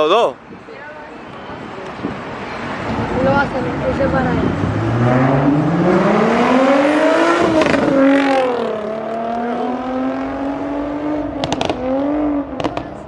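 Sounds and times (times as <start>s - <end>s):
car engine accelerating past: 3.8s - 12.8s
sharp cracks: 11.4s - 12.0s.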